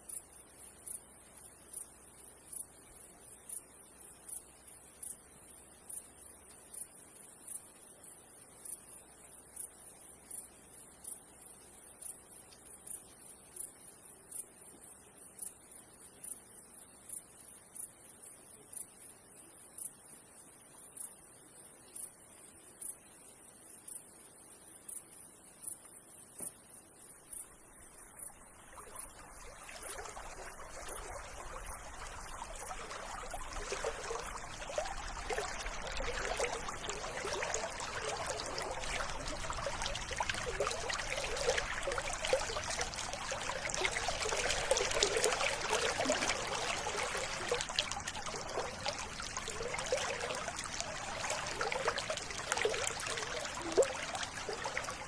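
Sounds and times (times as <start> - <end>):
river water babbling: 27.4 - 55.0.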